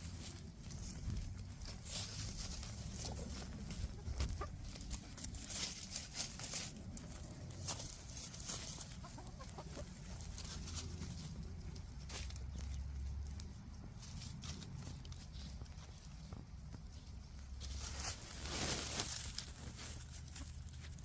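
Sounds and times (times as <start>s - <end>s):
rustles and clicks: 0.0s - 21.0s
hens clucking: 0.7s - 16.8s.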